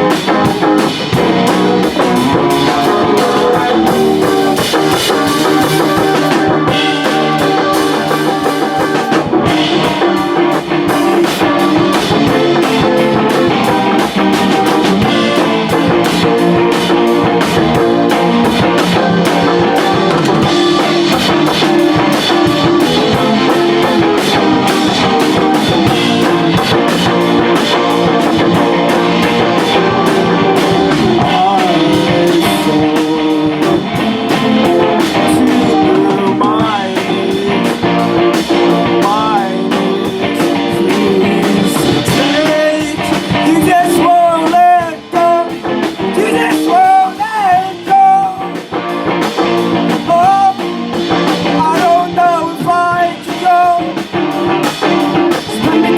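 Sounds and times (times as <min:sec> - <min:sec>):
person singing: 0:00.0 - 0:16.4, 0:17.2 - 0:26.9, 0:27.5 - 0:48.5, 0:49.9 - 0:54.1, 0:55.1 - 0:55.9
rock band playing: 0:00.0 - 0:55.9.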